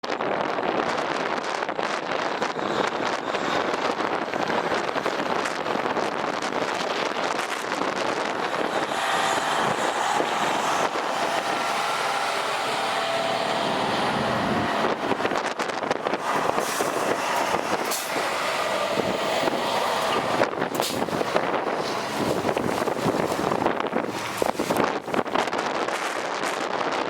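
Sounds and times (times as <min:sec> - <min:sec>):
wind gusts buffeting microphone: 0:00.0 - 0:27.0
heavy vehicle running: 0:00.1 - 0:26.2
blizzard wind rushing: 0:00.1 - 0:27.0.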